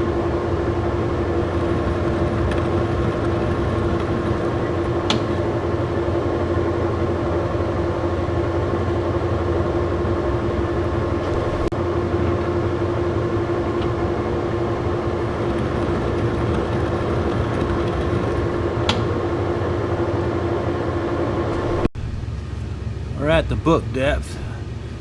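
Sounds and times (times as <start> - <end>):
lathe humming and whining: 0.0 - 25.0.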